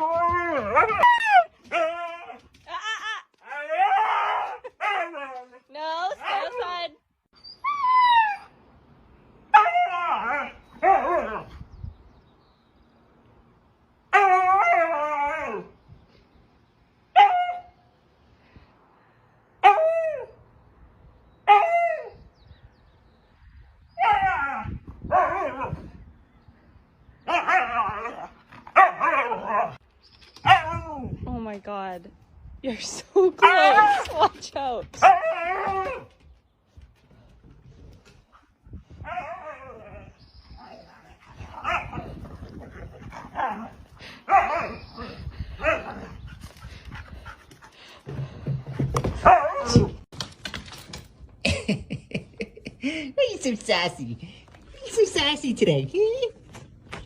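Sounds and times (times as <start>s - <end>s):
dog barking and yipping: 27.3s - 29.8s, 35.0s - 36.1s, 40.7s - 42.0s, 45.6s - 46.1s, 49.2s - 50.0s.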